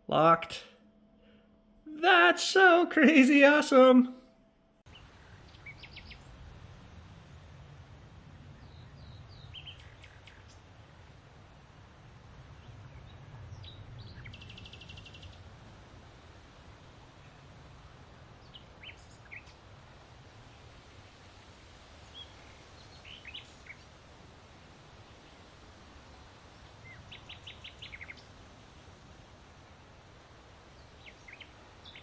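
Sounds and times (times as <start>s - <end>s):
faint low outdoor rumble: 4.4s - 32.0s
songbirds chirping: 4.9s - 7.0s, 8.5s - 10.8s, 16.1s - 20.8s, 21.8s - 24.2s, 24.9s - 32.0s.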